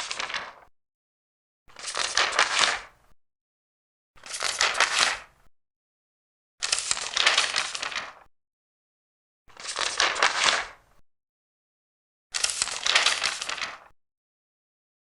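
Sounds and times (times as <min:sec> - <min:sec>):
paper pages turning: 0:00.0 - 0:00.6, 0:01.7 - 0:02.9, 0:04.2 - 0:05.3, 0:06.6 - 0:08.3, 0:09.6 - 0:10.8, 0:12.4 - 0:13.9.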